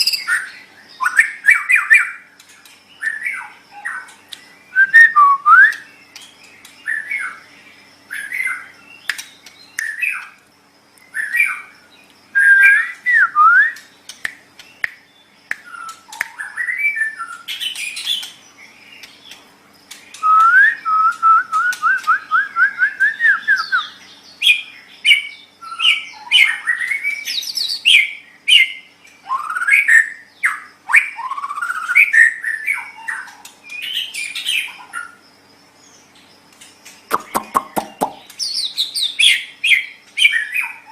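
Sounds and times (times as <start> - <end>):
bird singing whistled phrases: 0.0 - 2.2, 4.7 - 6.0, 12.4 - 13.9, 15.5 - 18.3, 20.1 - 34.8.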